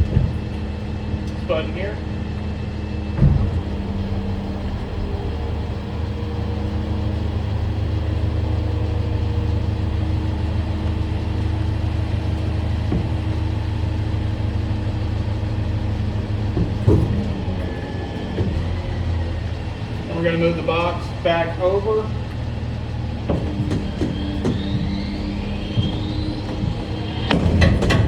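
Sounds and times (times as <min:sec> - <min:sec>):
truck engine droning: 0:00.0 - 0:28.0
short knocks: 0:09.5 - 0:19.3, 0:22.2 - 0:28.0.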